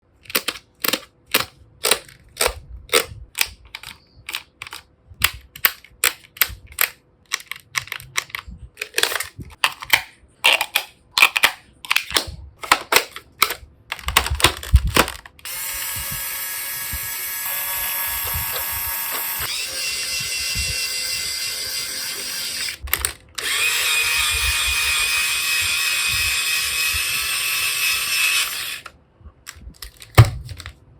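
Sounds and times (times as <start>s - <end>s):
plastic clicks and clacks: 0.2s - 15.4s, 22.8s - 23.3s, 29.4s - 30.8s
small electric motor whine: 15.5s - 22.8s, 23.4s - 28.9s.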